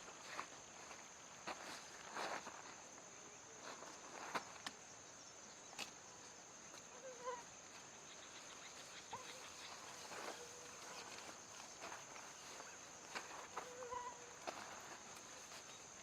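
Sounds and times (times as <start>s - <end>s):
faint animal calls: 6.9s - 15.1s.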